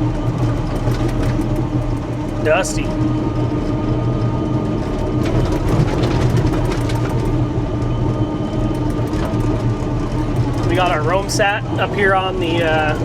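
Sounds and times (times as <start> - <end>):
bulldozer diesel engine running: 0.0 - 13.0
steel tracks clattering: 4.6 - 13.0.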